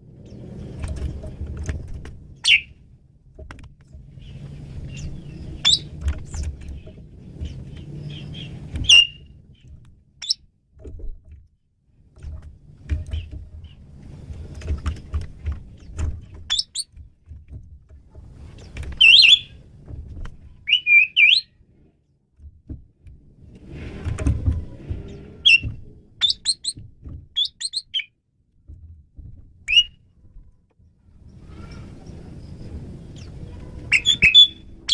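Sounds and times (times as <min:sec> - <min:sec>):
starling whistles and chirps: 0:02.4 - 0:02.7, 0:04.3 - 0:05.9, 0:07.5 - 0:09.2, 0:16.5 - 0:16.9, 0:19.0 - 0:19.5, 0:20.7 - 0:21.5, 0:25.1 - 0:26.8, 0:27.4 - 0:28.1, 0:29.7 - 0:30.0, 0:33.9 - 0:34.9.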